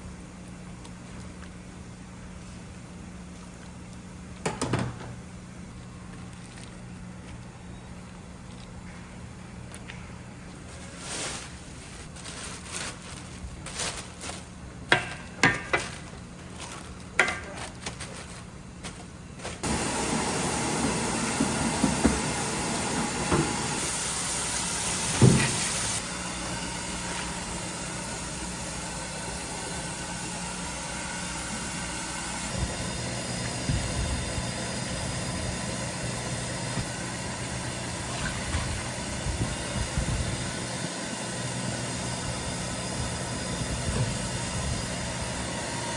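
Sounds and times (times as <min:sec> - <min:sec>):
low mechanical hum: 0:00.0 - 0:45.9.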